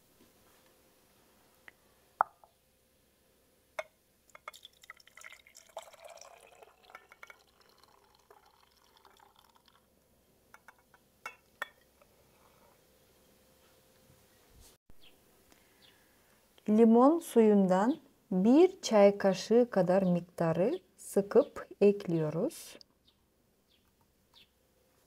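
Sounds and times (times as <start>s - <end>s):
glass clinking: 3.8s - 9.6s, 10.6s - 11.9s
juice pouring into glass: 4.3s - 9.9s.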